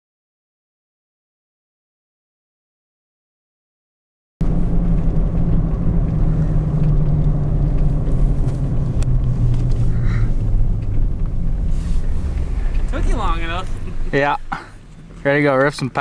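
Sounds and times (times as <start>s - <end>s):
vehicle engine idling: 4.4s - 16.0s.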